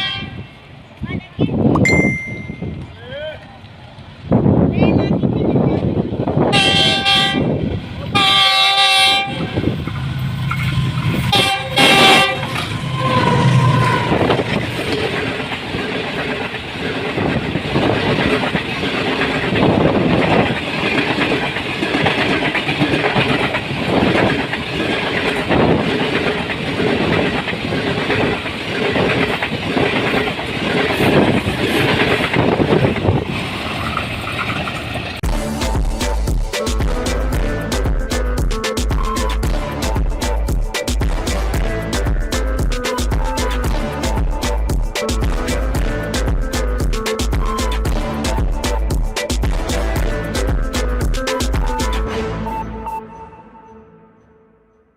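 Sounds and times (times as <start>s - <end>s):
locomotive horn blasts: 0.0s - 0.6s, 6.5s - 9.6s, 11.2s - 14.4s, 41.1s - 42.1s
train passing at speed: 0.0s - 54.3s
wheels clacking over rail joints: 8.6s - 35.2s.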